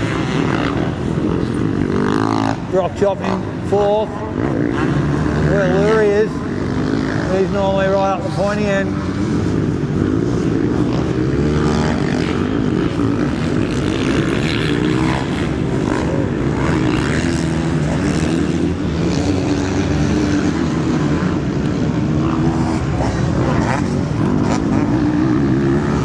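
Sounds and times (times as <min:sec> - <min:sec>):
motocross bike engines revving: 0:00.0 - 0:26.0.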